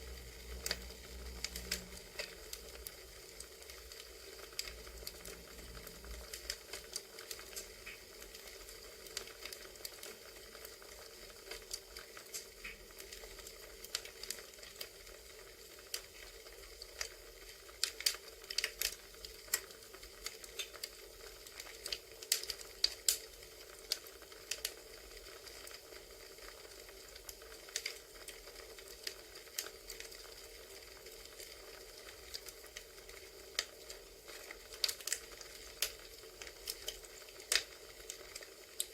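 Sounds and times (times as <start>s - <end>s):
steady low hiss: 0.0s - 14.8s
burning wood crackling and popping: 0.0s - 38.9s.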